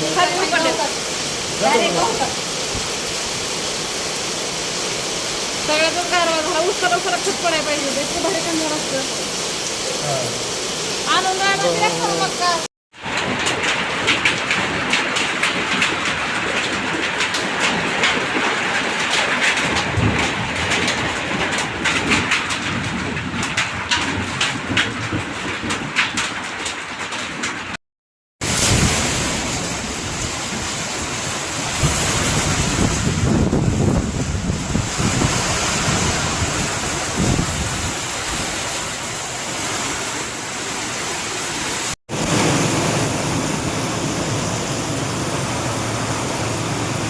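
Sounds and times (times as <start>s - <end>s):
heavy rain falling: 0.0s - 27.7s, 28.4s - 47.0s
wind rumbling on microphone: 28.4s - 40.0s.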